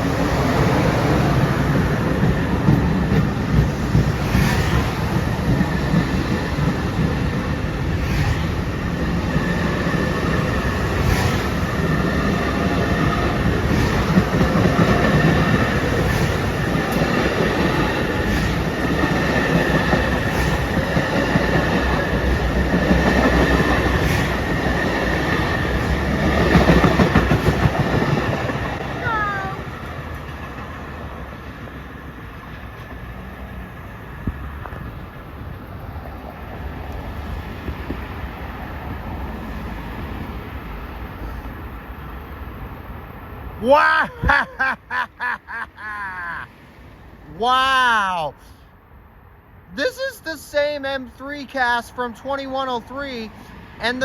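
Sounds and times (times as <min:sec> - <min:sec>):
wheels clicking over rail joints: 0:00.0 - 0:39.4
train rumbling past: 0:00.0 - 0:54.0.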